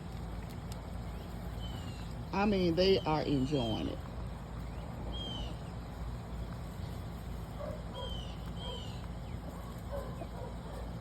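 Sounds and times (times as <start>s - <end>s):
low outdoor rumble: 0.0s - 11.0s
chickens clucking: 7.7s - 11.0s.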